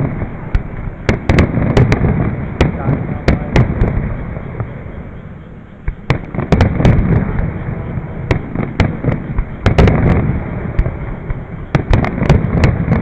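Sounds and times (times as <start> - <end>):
deep rumble: 0.0 - 13.0
fireworks bangs and crackles: 0.0 - 13.0.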